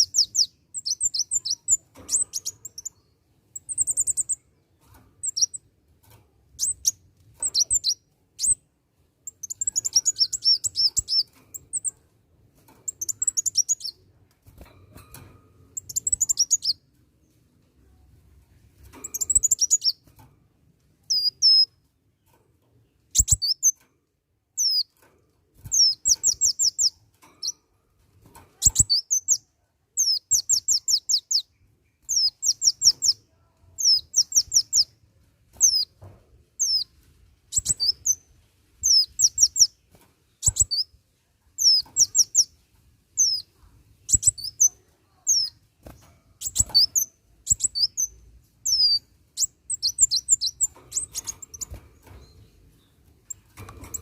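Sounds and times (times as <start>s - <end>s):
sunbird singing high chirps: 0.0s - 4.4s, 5.2s - 5.6s, 6.6s - 8.6s, 9.3s - 11.9s, 12.9s - 14.0s, 15.8s - 16.8s, 19.0s - 20.0s, 21.1s - 21.7s, 23.1s - 23.8s, 24.6s - 24.9s, 25.7s - 27.6s, 28.6s - 33.2s, 33.8s - 35.0s, 35.6s - 35.9s, 36.6s - 39.8s, 40.4s - 41.0s, 41.6s - 42.6s, 43.2s - 45.6s, 46.4s - 54.0s.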